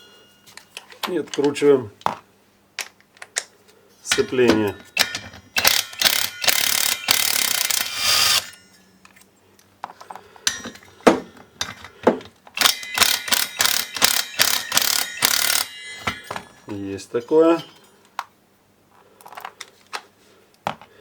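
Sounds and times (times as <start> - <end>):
ratchet wrench clicking: 5.6 - 8.6, 12.6 - 15.7.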